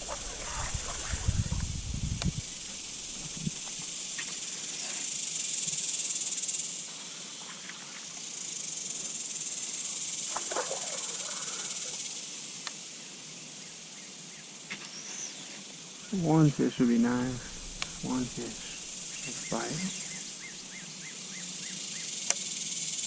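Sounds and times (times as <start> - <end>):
insects buzzing: 0.0 - 23.0
faint short calls: 16.1 - 20.8.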